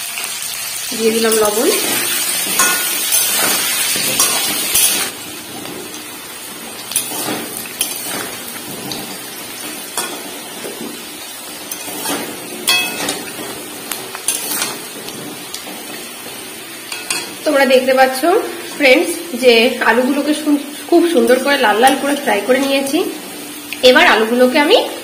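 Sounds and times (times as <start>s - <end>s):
potatoes sizzling in oil: 0.0s - 25.0s
spatula scraping and clinking on pan: 1.2s - 17.4s.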